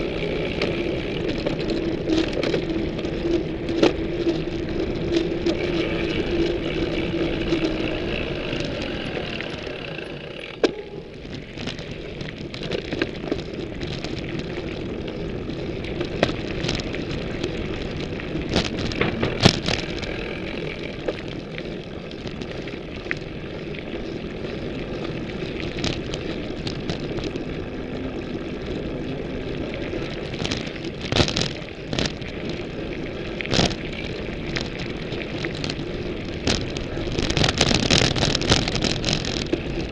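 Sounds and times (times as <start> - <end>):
bike frame knocks and rattles: 0.0 - 22.6, 30.0 - 32.5, 33.5 - 39.9
bike tyre rolling noise: 0.0 - 39.9.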